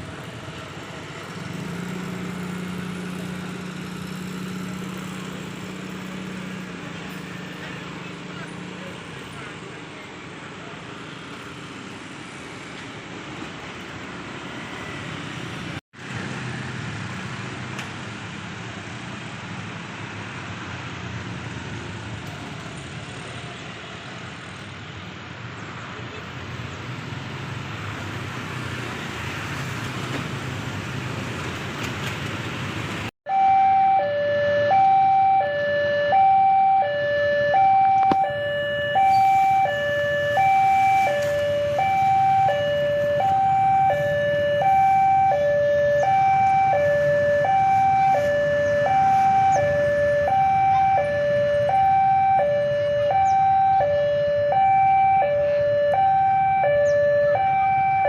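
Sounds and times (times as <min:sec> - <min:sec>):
level crossing two-tone alarm: 0:33.3 - 0:58.0.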